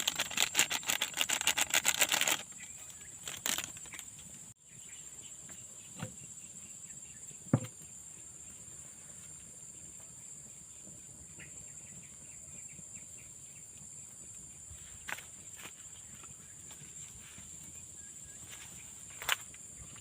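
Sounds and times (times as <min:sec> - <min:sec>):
knock: 0:07.5 - 0:07.7.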